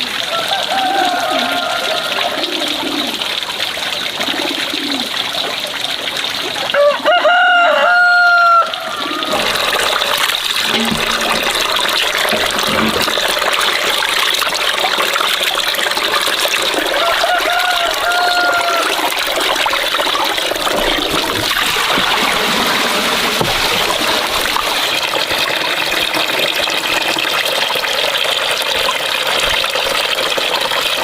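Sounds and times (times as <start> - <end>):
water trickling: 0.0 - 31.0
rooster crowing: 0.3 - 2.4, 6.7 - 9.4, 16.8 - 19.1.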